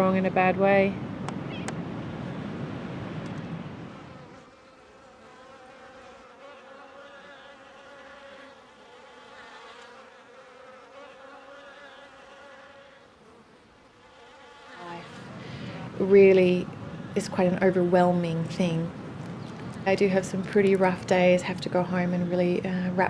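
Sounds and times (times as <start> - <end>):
insect buzzing: 3.2 - 23.0.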